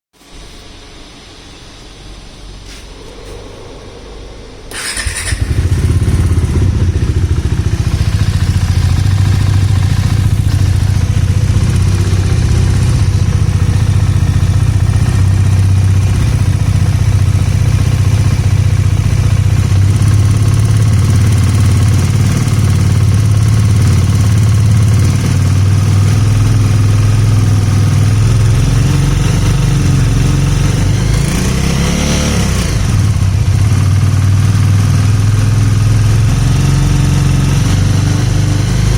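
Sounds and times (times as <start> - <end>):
engine ticking: 4.7 - 31.3
motorcycle engine starting and idling: 4.7 - 38.9.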